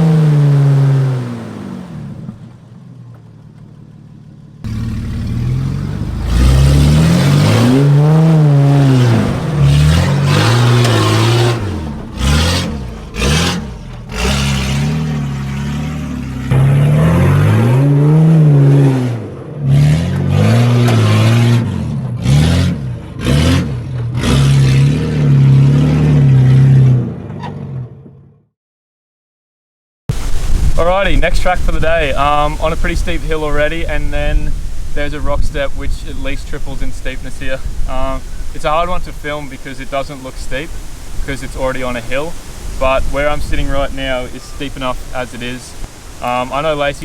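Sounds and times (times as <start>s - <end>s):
engine revving: 0.0s - 2.4s, 4.6s - 27.2s.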